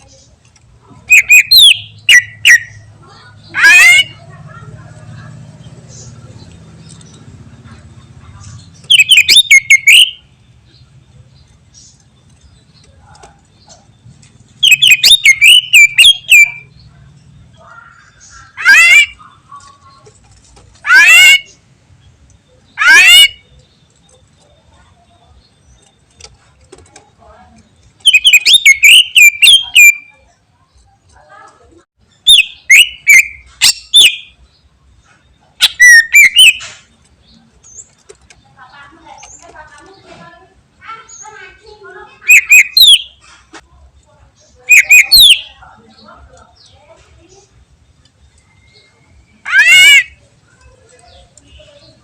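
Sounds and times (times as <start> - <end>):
bird whistling sharp notes: 1.1 - 2.8, 8.9 - 10.2, 14.6 - 16.7, 28.0 - 30.1, 35.6 - 36.8, 42.2 - 43.2.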